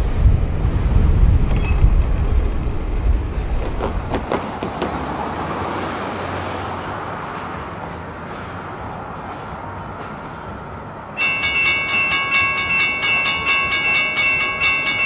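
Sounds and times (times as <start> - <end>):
rushing noise: 0.0 - 13.8
train rumbling past: 0.0 - 15.0.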